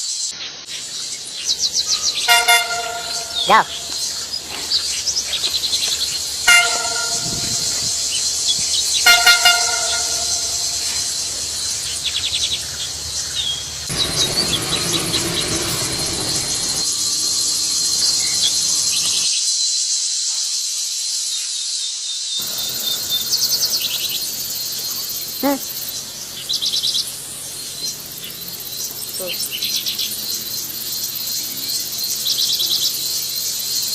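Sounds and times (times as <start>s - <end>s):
high-pitched insect chorus: 0.0s - 33.9s
horn-like call: 2.1s - 4.3s, 6.1s - 12.1s.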